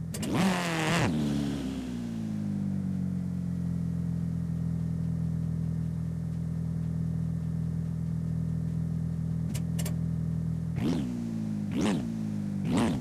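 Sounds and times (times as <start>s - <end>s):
video game car engine: 0.0s - 13.0s.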